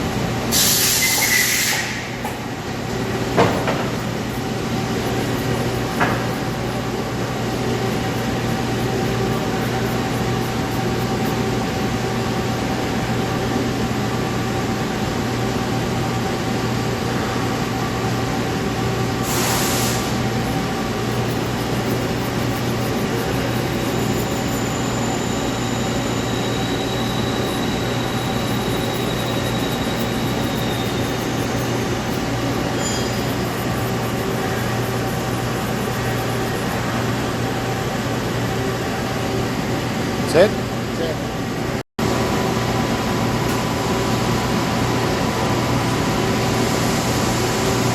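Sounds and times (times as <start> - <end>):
lathe machine hum and whir: 0.0 - 47.9
faint high whines: 19.2 - 38.0.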